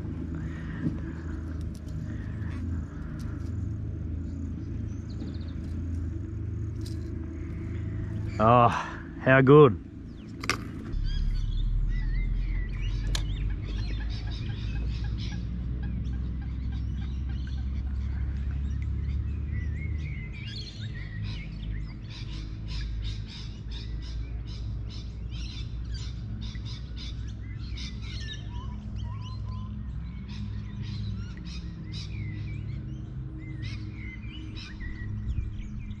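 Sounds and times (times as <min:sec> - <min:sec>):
low rumble: 0:00.0 - 0:20.4, 0:33.5 - 0:36.0
small birds chirping: 0:00.1 - 0:36.0.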